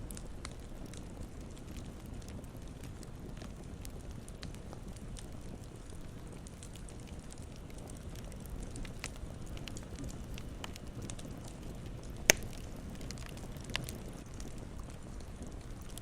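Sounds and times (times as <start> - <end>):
campfire low rumble: 0.0 - 16.0
wood crackling: 0.1 - 16.0
sharp loud pop: 12.3 - 12.5.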